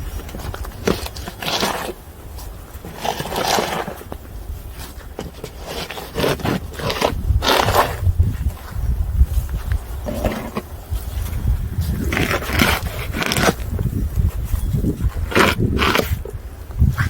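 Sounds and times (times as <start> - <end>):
scraping and crunching in snow: 0.0 - 17.0
wind on microphone: 3.8 - 17.0.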